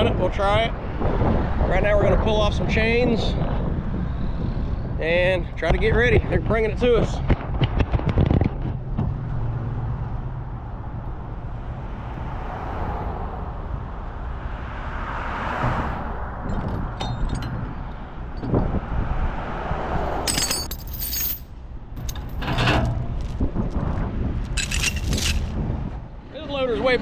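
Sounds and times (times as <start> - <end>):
steel chains clanking: 16.5 - 18.7, 20.3 - 23.0, 24.6 - 25.5.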